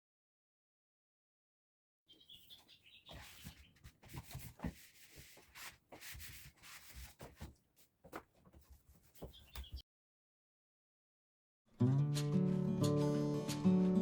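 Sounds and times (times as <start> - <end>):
faint bird chirps: 2.1 - 3.8, 9.2 - 9.8
cloth scrubbing a refrigerator: 2.2 - 9.8
small knocks and bumps: 2.5 - 9.8.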